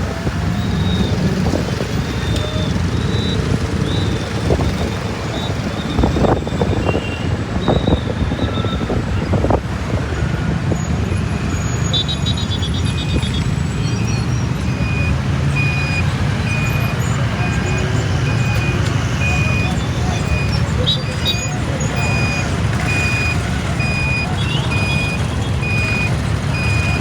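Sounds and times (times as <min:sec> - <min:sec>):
motorcycle engine running: 0:00.0 - 0:07.2, 0:14.5 - 0:27.0.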